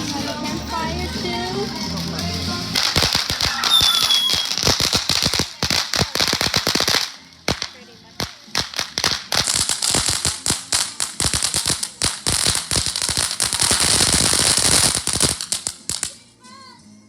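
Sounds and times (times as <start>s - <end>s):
firecrackers popping: 0.0s - 16.4s.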